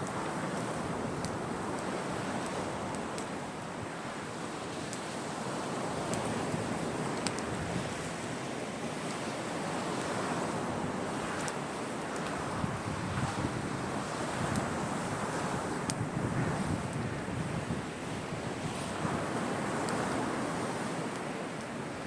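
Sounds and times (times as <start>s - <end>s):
sea waves washing onto shore: 0.0s - 22.0s
wood fire crackling: 0.0s - 22.0s.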